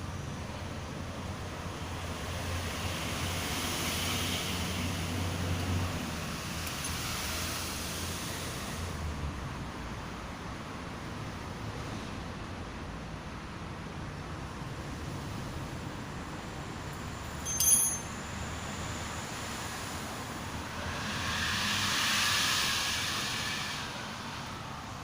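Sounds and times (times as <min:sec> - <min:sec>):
hiss: 0:02.3 - 0:09.2, 0:18.7 - 0:25.0
ringing metal clink: 0:17.4 - 0:18.2.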